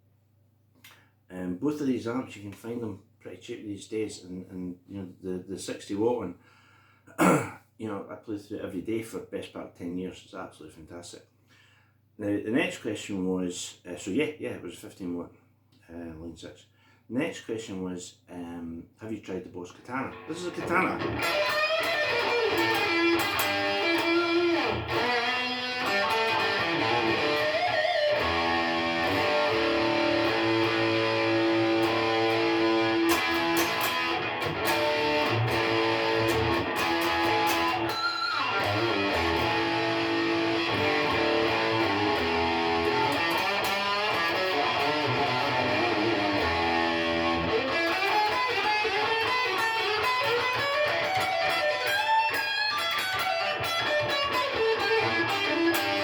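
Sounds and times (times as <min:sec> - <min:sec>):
electric guitar: 0:20.1 - 0:56.0.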